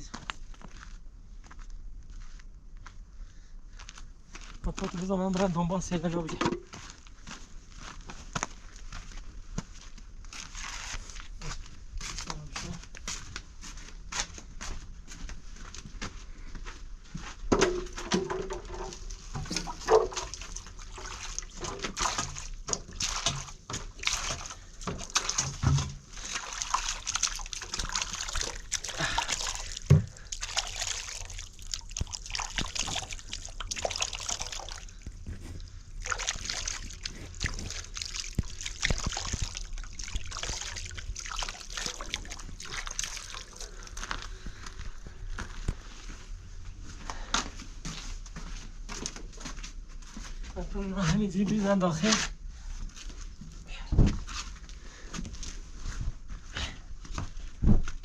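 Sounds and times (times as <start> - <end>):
water sloshing and splashing: 17.5 - 46.2.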